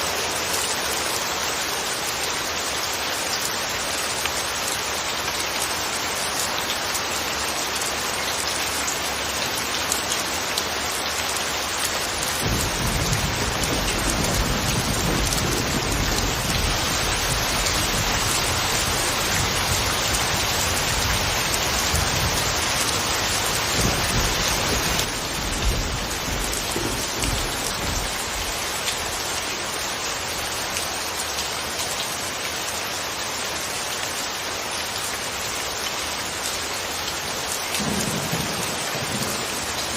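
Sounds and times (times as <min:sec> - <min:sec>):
steady rain hiss: 0:00.0 - 0:39.9
low rumble of thunder: 0:12.3 - 0:28.6, 0:37.8 - 0:39.9.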